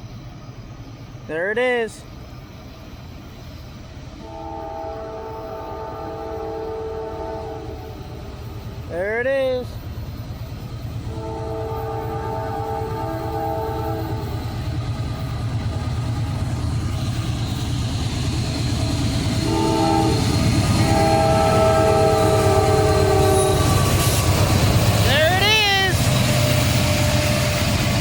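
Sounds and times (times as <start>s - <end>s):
locomotive engines rumbling: 0.0s - 28.0s
train air horn blasts: 4.2s - 8.0s, 11.1s - 14.4s, 19.3s - 24.0s.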